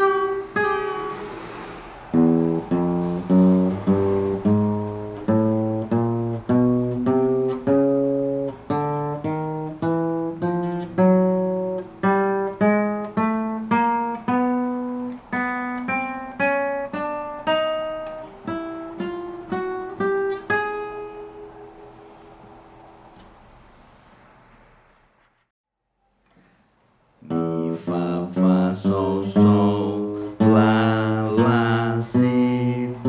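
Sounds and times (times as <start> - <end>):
acoustic guitar plucked notes: 0.0 - 23.2, 27.2 - 33.0.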